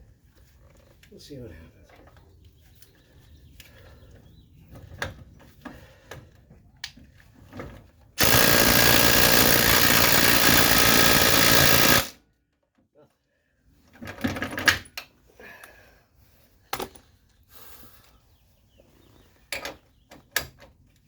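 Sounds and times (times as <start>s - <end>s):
impact wrench hammering: 8.2s - 12.1s.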